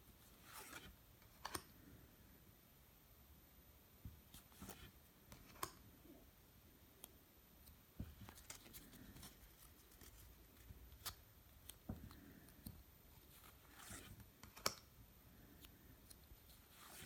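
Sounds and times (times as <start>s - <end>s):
trading cards and packaging rustling: 8.0s - 14.7s.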